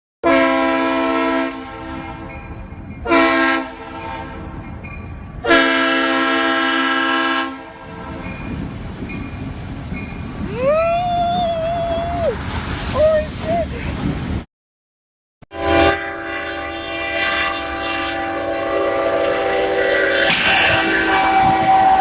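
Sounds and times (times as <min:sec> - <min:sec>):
multi-note air horn blasts: 0:00.2 - 0:02.3, 0:03.0 - 0:04.4, 0:05.4 - 0:08.2, 0:15.5 - 0:22.0
higher tone sliding up: 0:16.5 - 0:22.0.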